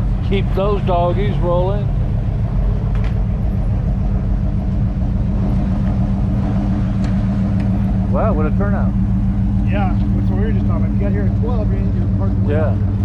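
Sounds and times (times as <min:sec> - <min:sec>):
car engine rumbling at low speed: 0:00.0 - 0:13.0.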